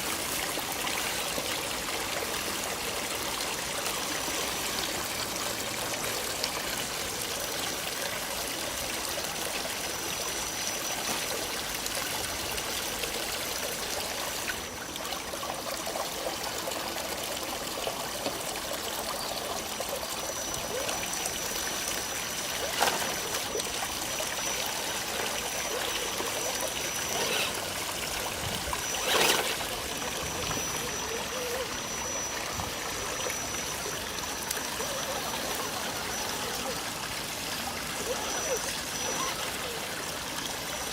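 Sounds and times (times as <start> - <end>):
trickling stream water: 0.0 - 40.9
faint high whine: 20.2 - 36.8.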